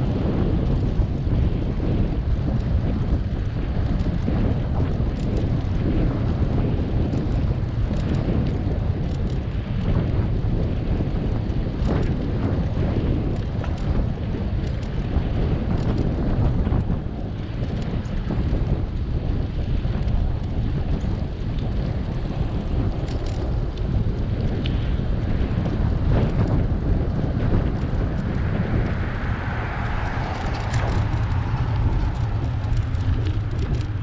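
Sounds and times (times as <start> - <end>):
wind buffeting microphone: 0.0 - 34.0
faint light ticks: 23.0 - 24.9.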